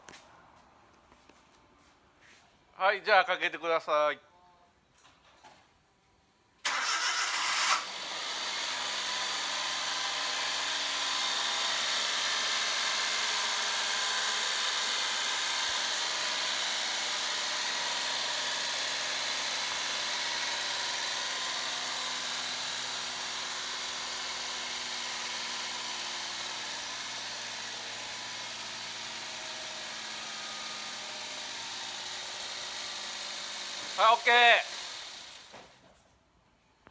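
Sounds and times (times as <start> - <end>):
engine starter cranking: 6.6 - 8.0
engine idling: 6.7 - 35.5.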